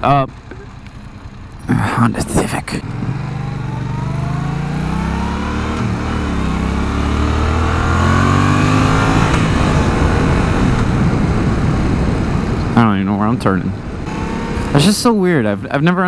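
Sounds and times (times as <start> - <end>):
motorcycle engine accelerating: 2.8 - 16.0
wind rush over microphone: 9.4 - 14.1.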